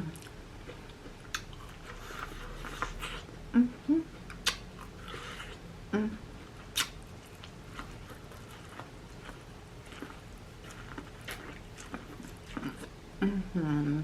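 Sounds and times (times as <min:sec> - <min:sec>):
wet chewing: 0:00.1 - 0:03.3, 0:04.2 - 0:05.6, 0:06.6 - 0:13.0
person humming: 0:03.5 - 0:04.2, 0:05.9 - 0:06.2, 0:13.2 - 0:14.0
mouth clicks and smacks: 0:04.3 - 0:04.7, 0:06.7 - 0:07.0.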